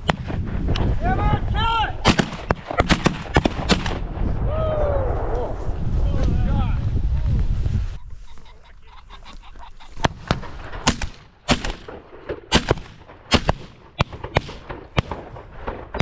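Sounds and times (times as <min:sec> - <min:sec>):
pheasant cackling calls: 0:08.0 - 0:10.3.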